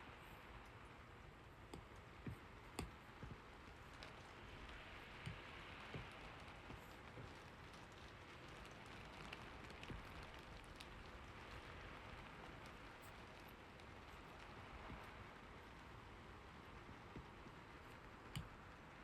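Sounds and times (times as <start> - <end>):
faint steady rain: 0.0 - 19.0
light ticks: 1.7 - 16.1, 16.7 - 18.8.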